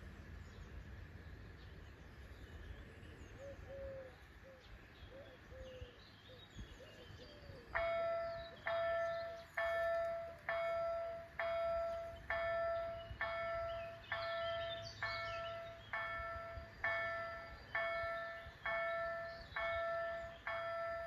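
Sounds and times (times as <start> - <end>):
birds chirping: 0.2 - 21.0
level crossing bells ringing: 7.8 - 21.0.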